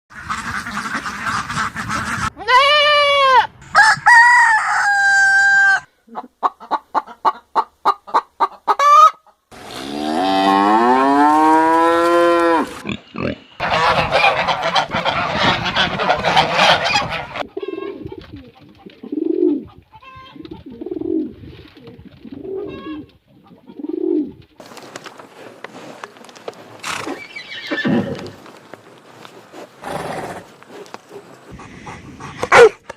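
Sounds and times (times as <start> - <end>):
chickens clucking: 0.1 - 2.4, 6.1 - 9.4, 13.6 - 24.5
rooster crowing: 3.6 - 5.9.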